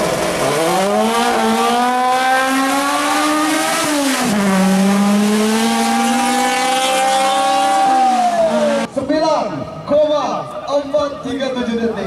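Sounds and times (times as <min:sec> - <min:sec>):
car engine at full throttle: 0:00.0 - 0:09.0.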